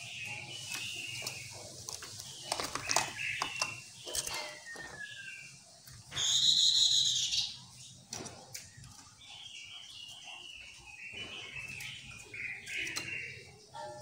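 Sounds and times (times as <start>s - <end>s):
bird harsh call: 6.1s - 7.6s.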